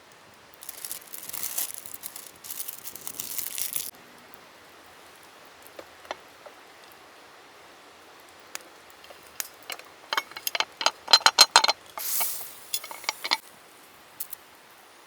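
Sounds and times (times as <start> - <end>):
metal cookware clinking: 5.8 - 6.2, 9.0 - 13.4
short hiss: 12.0 - 12.8.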